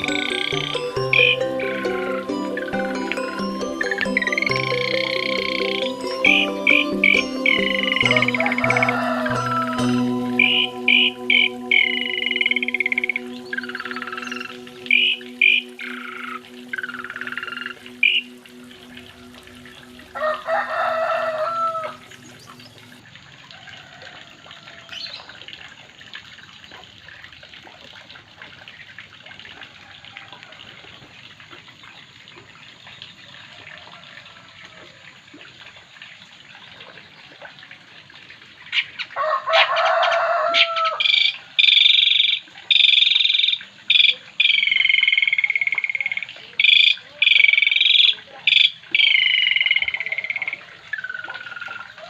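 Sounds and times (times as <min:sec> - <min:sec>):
high-pitched broken calling: 0:00.0 - 0:20.4
rooster crowing: 0:07.9 - 0:11.2, 0:20.1 - 0:22.2, 0:23.5 - 0:24.9, 0:39.2 - 0:41.1.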